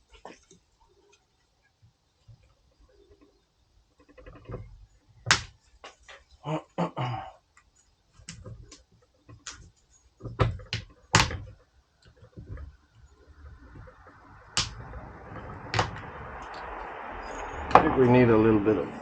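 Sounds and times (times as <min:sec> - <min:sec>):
metal scraping: 0:08.3 - 0:19.0
metal knocks and clanks: 0:10.2 - 0:16.8.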